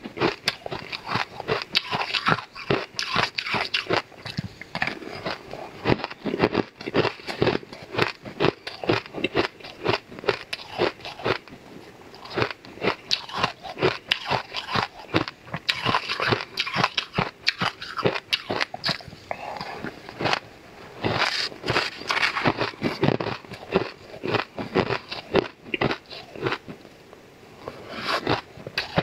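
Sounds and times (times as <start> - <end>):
crunchy chewing: 0.1 - 20.4, 21.0 - 26.9, 27.6 - 29.0.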